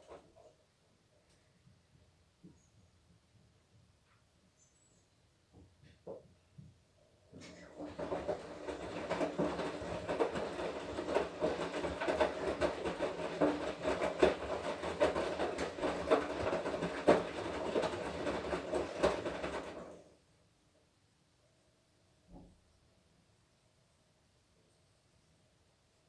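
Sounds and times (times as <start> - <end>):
washing machine drum rattling: 7.4 - 20.1.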